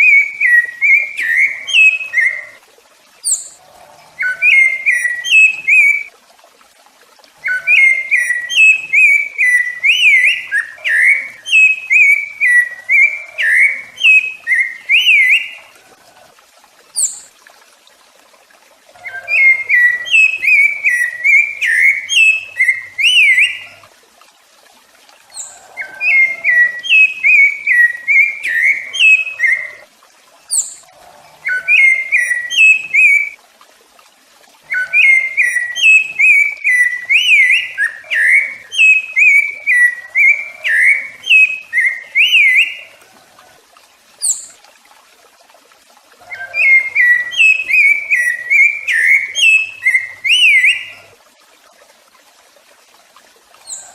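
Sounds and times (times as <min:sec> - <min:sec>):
thrush singing fluted whistles: 0:00.0 - 0:02.6, 0:04.2 - 0:06.1, 0:07.5 - 0:15.7, 0:19.1 - 0:23.7, 0:25.4 - 0:29.8, 0:31.4 - 0:33.4, 0:34.7 - 0:42.9, 0:46.3 - 0:51.0.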